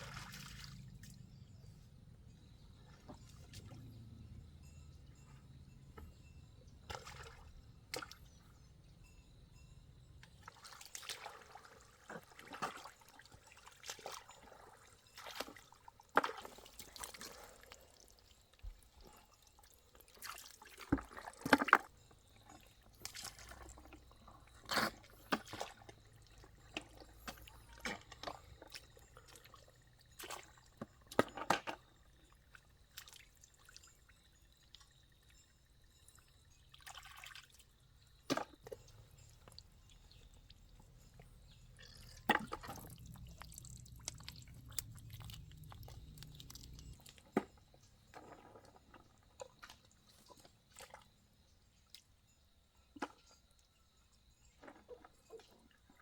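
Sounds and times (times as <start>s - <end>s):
water splashing and pouring: 0.0s - 1.2s, 10.5s - 21.9s, 23.0s - 34.0s, 38.3s - 47.5s.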